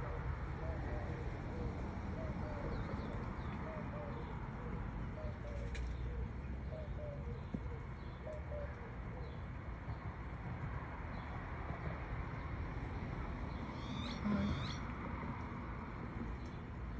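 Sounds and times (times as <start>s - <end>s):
bird cooing: 0.0s - 9.4s, 13.8s - 14.8s.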